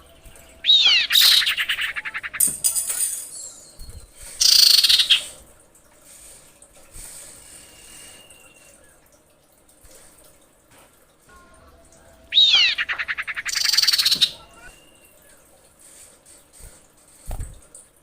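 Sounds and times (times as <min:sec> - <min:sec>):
bird whistle and trill: 0:00.4 - 0:02.5, 0:03.3 - 0:05.3, 0:12.3 - 0:15.4
faint thin bird whistle: 0:07.5 - 0:09.0.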